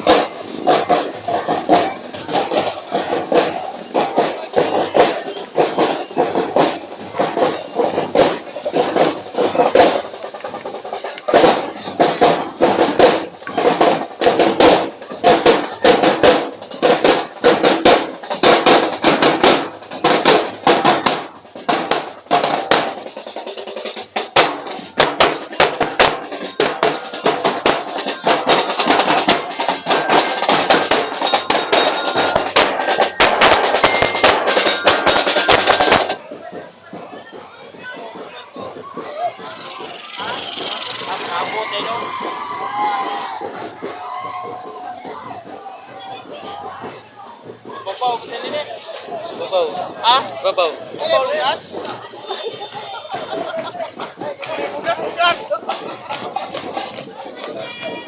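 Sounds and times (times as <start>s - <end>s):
percussion-driven dance music: 0.0s - 58.0s.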